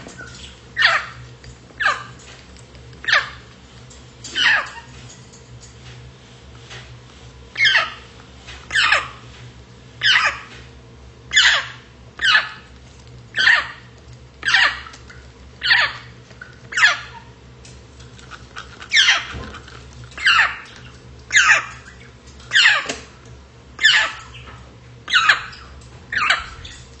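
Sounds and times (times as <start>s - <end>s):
parrot calling: 0.1s - 2.2s, 3.0s - 3.5s, 4.3s - 5.0s, 7.5s - 8.1s, 8.7s - 9.2s, 10.0s - 10.5s, 11.3s - 12.7s, 13.3s - 15.0s, 15.6s - 17.4s, 18.3s - 23.1s, 23.8s - 26.9s.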